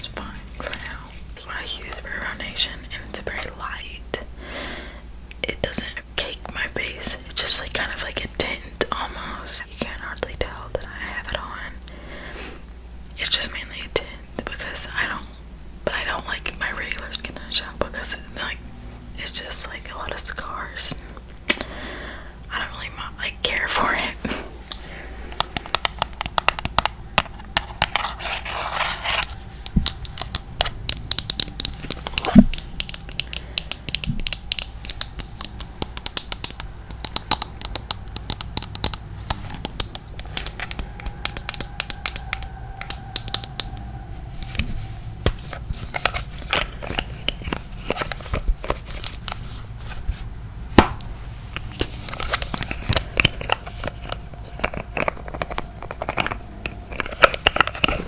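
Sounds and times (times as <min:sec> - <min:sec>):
tapping and scratching on makeup: 0:22.5 - 0:43.8, 0:44.4 - 0:58.0.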